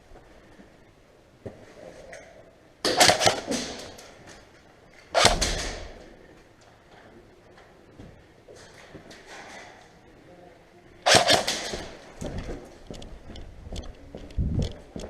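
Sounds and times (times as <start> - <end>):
airsoft gun bursts: 2.9 - 3.8, 5.1 - 5.9, 11.1 - 12.0.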